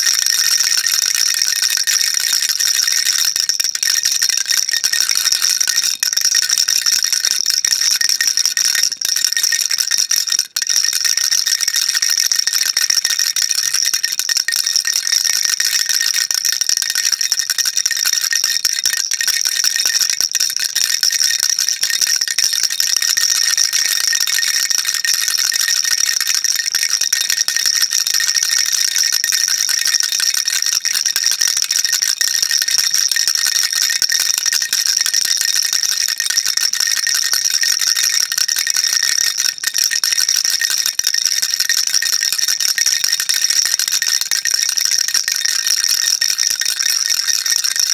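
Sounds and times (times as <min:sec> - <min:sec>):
baby rattle shaking: 0:00.0 - 0:26.5, 0:35.7 - 0:45.5.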